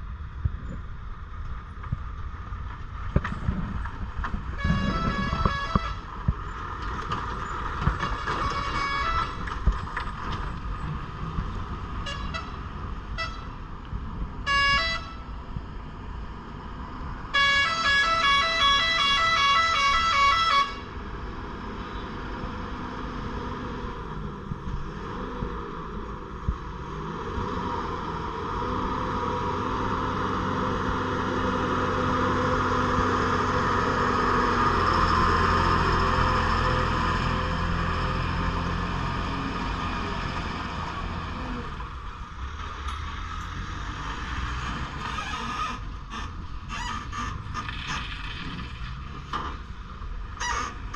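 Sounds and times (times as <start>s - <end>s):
diesel lorry engine: 0.0s - 50.9s
lorry horn toots and blast: 17.3s - 20.9s.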